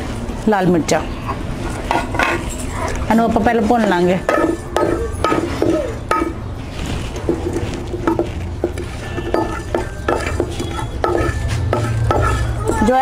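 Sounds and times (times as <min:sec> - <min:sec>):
wooden spatula scraping frying pan: 0:06.8 - 0:12.9.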